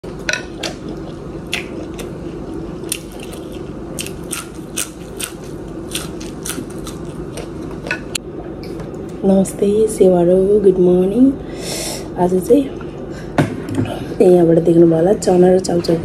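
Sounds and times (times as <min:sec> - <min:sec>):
chewing chili with wet clicks: 0:00.6 - 0:02.2.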